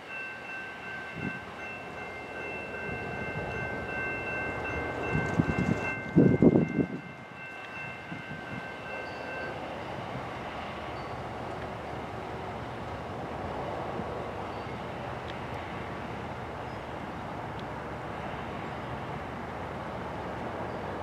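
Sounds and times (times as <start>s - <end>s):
railroad crossing bell ringing: 0.0s - 12.4s
diesel train running slowly: 0.0s - 21.0s.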